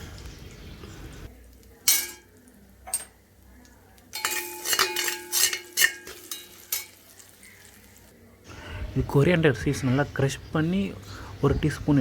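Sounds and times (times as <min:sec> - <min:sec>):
metal spoon clinking on cookware: 0:01.8 - 0:03.2, 0:04.1 - 0:07.8.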